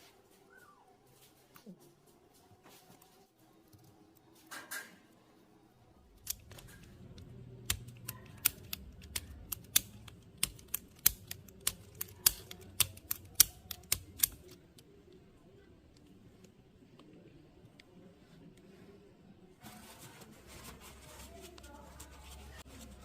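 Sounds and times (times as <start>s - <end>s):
faint low hum: 0.0s - 23.0s
small hard parts clicking: 6.2s - 14.8s.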